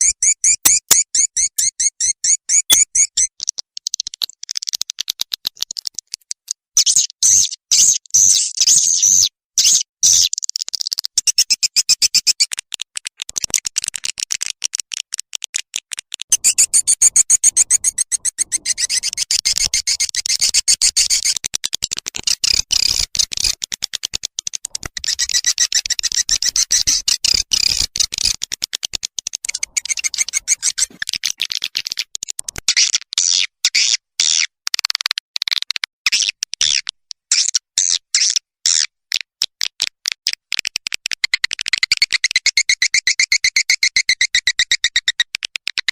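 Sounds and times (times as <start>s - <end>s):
swiftlets chirping: 16.3s - 21.4s, 24.4s - 32.0s.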